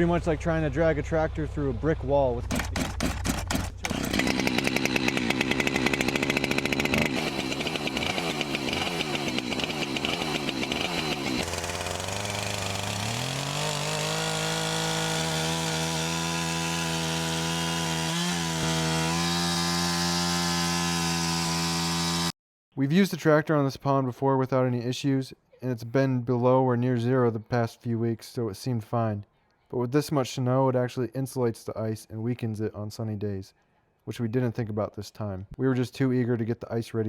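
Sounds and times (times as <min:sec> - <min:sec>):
chainsaw cutting ice: 0:02.5 - 0:22.4.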